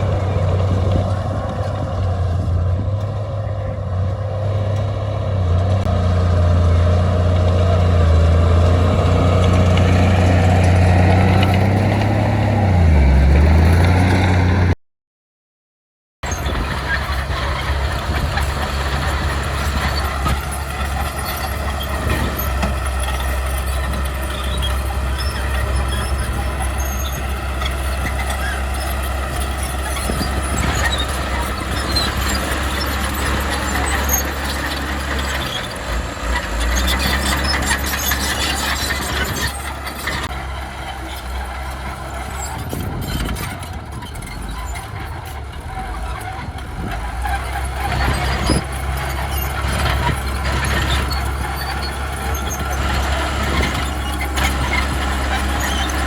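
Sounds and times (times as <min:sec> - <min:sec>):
diesel machinery engine drone: 0:00.0 - 0:14.8, 0:16.2 - 0:56.0
high squeal: 0:16.3 - 0:56.0.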